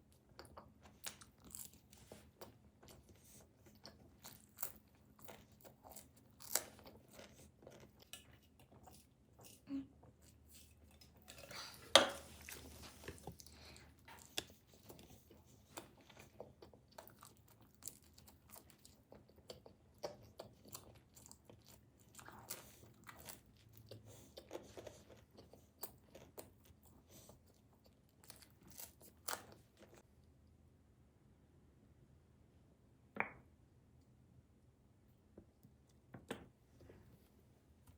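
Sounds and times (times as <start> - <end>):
person chewing crunchy food: 0.1 - 30.0.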